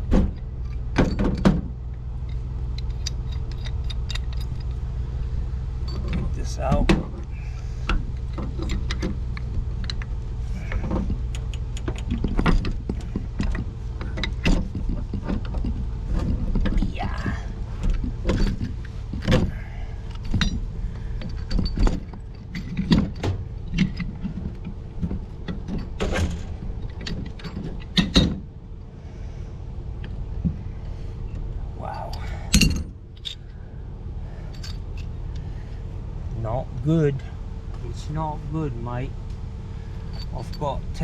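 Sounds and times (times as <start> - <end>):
steady low hum: 0.0 - 41.0
hand tools clanking on metal: 5.8 - 28.4, 31.9 - 33.6, 40.0 - 41.0.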